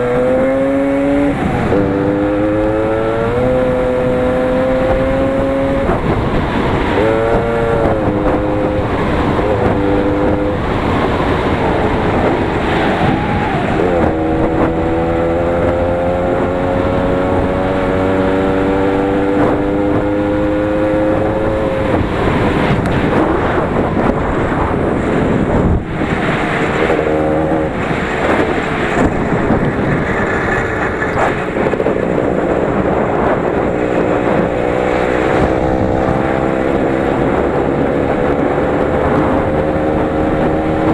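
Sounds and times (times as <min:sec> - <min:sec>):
tractor engine running under load: 0:21.1 - 0:40.9.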